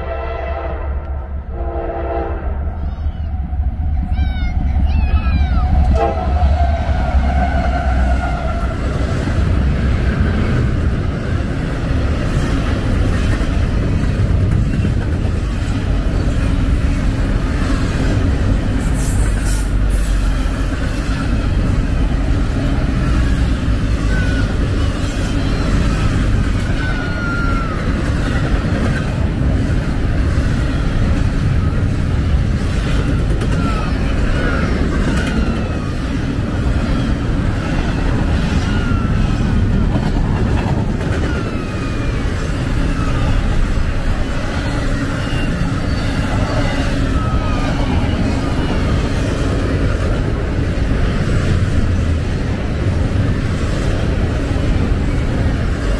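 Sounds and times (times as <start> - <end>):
train horn: 0.0 - 2.7, 5.8 - 9.1
wheels on rails: 2.8 - 55.9
wheel squeals: 44.4 - 49.1.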